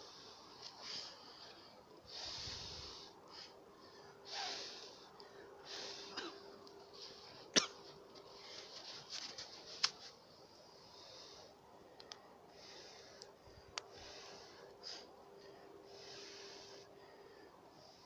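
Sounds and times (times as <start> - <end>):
fire hissing: 2.0 - 3.6.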